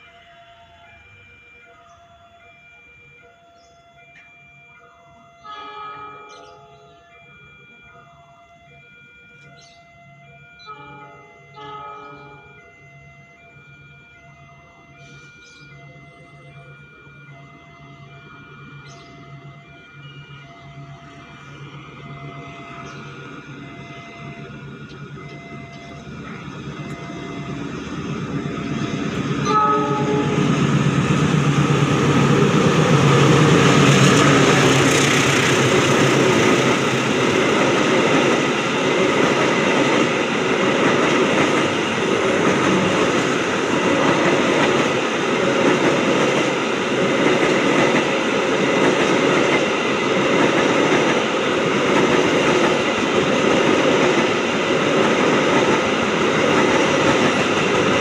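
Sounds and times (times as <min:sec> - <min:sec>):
diesel locomotive passing: 0:00.0 - 0:58.0
train horn blast: 0:05.2 - 0:07.2, 0:10.6 - 0:46.0.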